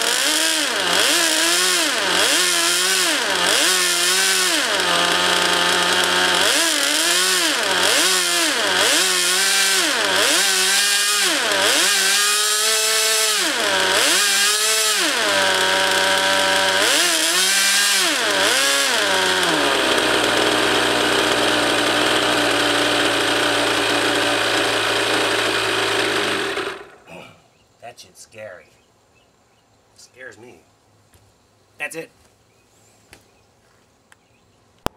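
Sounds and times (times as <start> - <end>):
model jet engine revving: 0.0 - 27.0.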